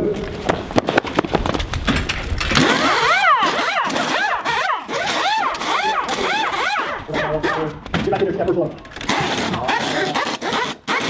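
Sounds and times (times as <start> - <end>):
impact wrenches clattering: 1.9 - 7.0.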